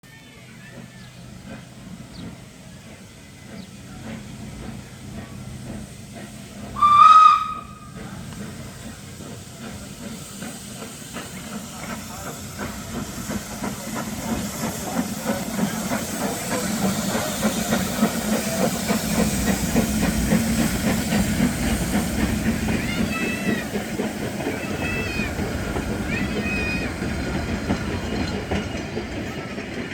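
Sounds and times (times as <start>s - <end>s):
steam locomotive hissing and running: 0.0s - 29.9s
steam whistle blast: 6.8s - 8.0s.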